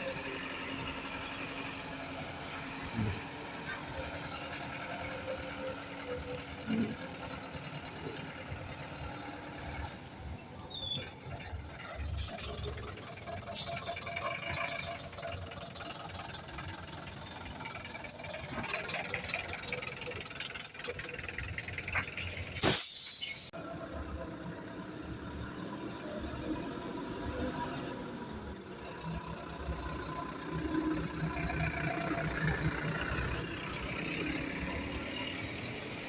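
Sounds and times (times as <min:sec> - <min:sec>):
buses running: 0:00.0 - 0:36.0
air brakes hissing: 0:22.4 - 0:23.5.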